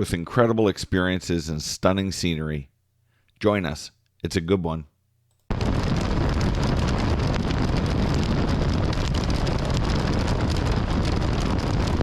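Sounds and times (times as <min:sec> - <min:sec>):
wind rushing over microphone: 0:05.5 - 0:12.0.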